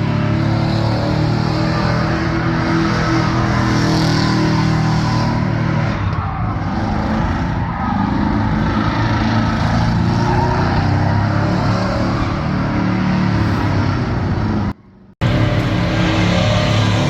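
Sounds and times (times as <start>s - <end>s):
vehicle engine revving high: 8.0s - 17.0s.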